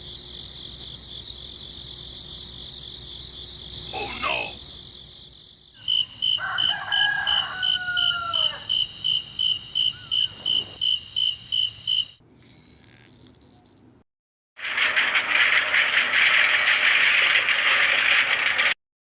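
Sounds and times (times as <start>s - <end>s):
crickets chirping: 0.0s - 13.8s
drawn-out falling call: 5.8s - 10.8s.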